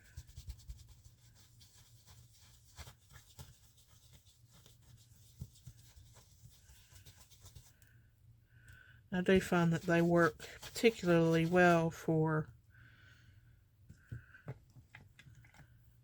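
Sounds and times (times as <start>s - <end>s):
ink tool dabbing on paper: 9.2s - 12.0s.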